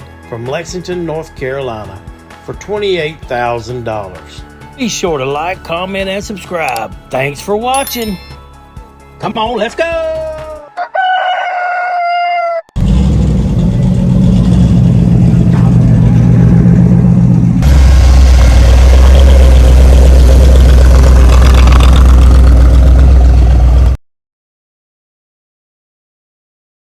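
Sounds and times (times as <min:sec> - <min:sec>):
rooster crowing: 0:10.6 - 0:12.8
car engine revving: 0:12.8 - 0:24.0.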